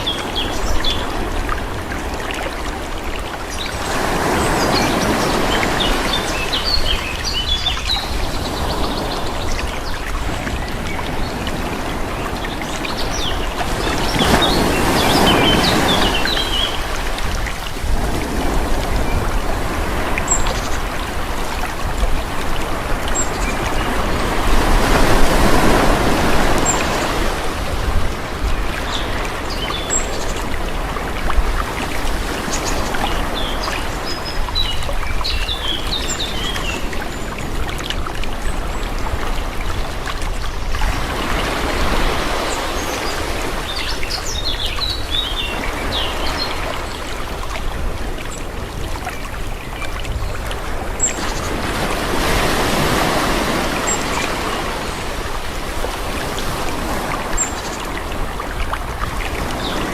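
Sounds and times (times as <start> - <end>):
small waves washing in: 0.0 - 59.9
birds chirping: 3.5 - 16.9, 42.0 - 47.0.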